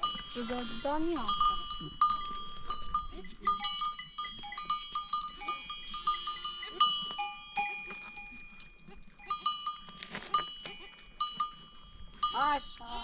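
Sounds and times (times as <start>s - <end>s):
animal bells clanking: 0.0s - 13.0s.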